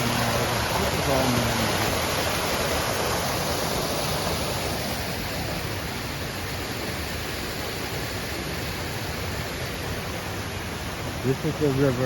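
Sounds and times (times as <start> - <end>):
water pouring from fountain: 0.0 - 6.1.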